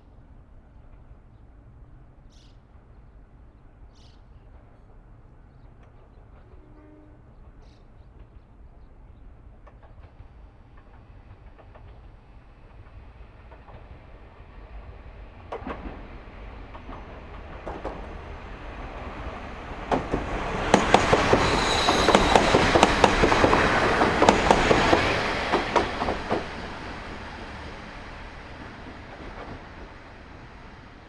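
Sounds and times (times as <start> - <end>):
diesel railcar passing: 0.2 - 31.0
wheels clacking over rail joints: 9.4 - 31.0
high wheel squeal: 20.5 - 25.1.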